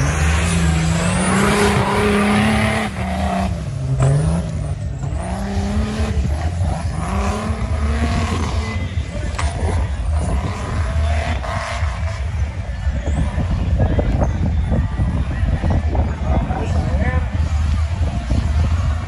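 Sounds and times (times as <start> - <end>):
race engine revving hard: 0.0 - 12.5.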